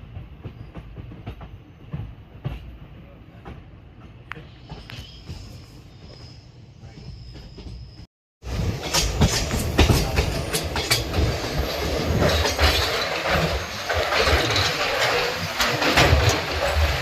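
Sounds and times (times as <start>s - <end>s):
train rumbling on rails: 0.0s - 17.0s
wheels clattering over track: 8.5s - 17.0s.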